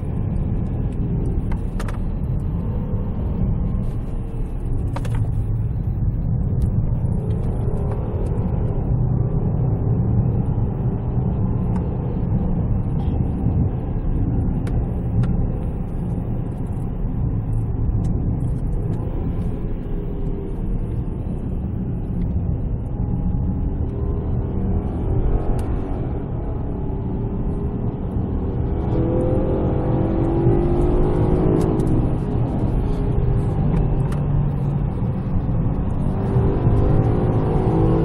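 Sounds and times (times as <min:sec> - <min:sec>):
car engine running: 0:00.0 - 0:37.8
road rumble: 0:00.0 - 0:38.0.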